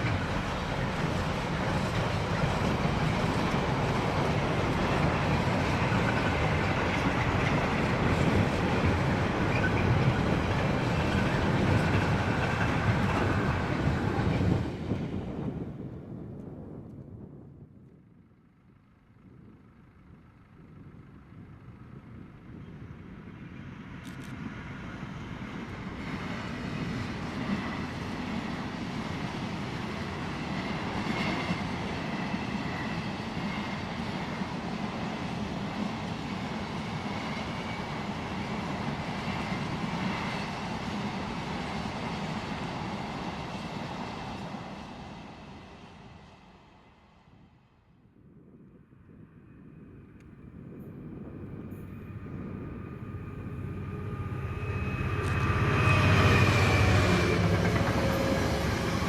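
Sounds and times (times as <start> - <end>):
train rumbling past: 0.0 - 47.7, 49.0 - 59.0.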